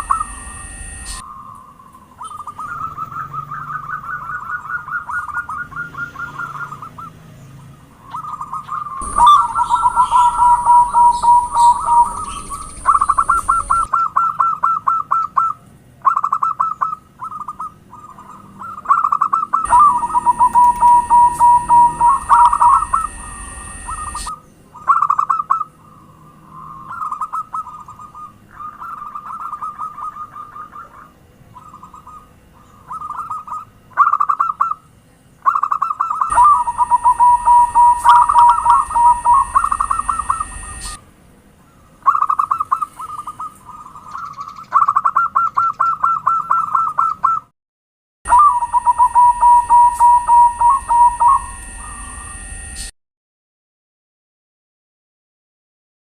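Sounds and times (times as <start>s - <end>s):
steady high hiss: 0.0s - 1.2s, 9.0s - 13.9s, 19.7s - 24.3s, 36.3s - 41.0s
doves cooing: 0.0s - 7.2s, 8.0s - 34.8s, 35.4s - 41.0s, 48.3s - 52.2s.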